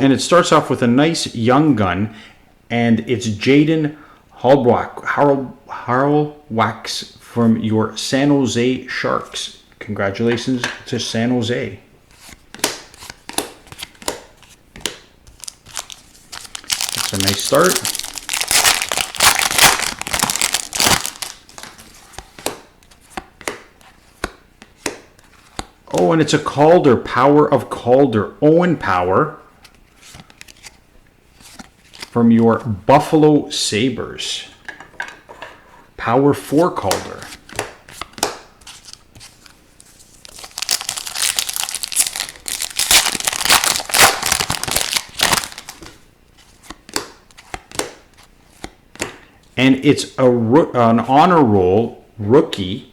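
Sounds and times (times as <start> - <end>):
foil wrapper crinkling: 15.3 - 22.0, 38.8 - 46.0.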